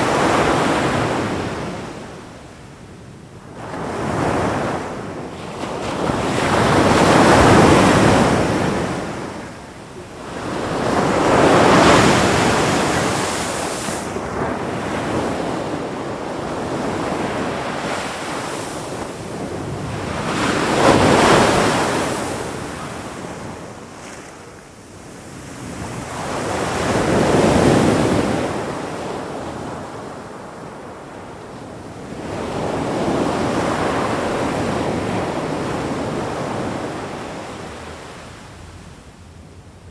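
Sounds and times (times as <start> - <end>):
ocean waves breaking on shore: 3.6 - 29.7.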